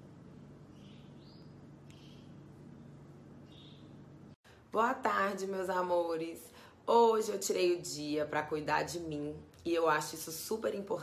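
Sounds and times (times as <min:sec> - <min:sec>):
low steady hum: 0:00.0 - 0:11.0
bird chirping faintly: 0:00.3 - 0:04.3.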